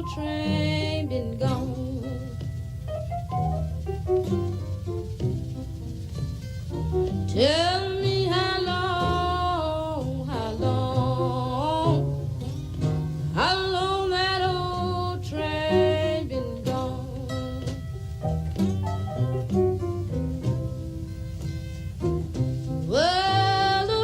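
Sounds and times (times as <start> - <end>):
woman singing blues: 0.0 - 2.9, 7.3 - 18.0, 22.8 - 24.0
acoustic blues band: 0.0 - 24.0.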